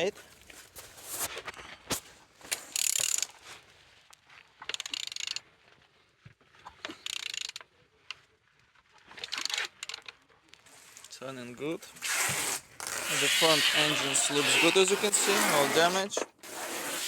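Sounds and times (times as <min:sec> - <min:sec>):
ratchet wrench clicking: 0:02.7 - 0:03.3, 0:04.7 - 0:05.4, 0:07.0 - 0:07.6.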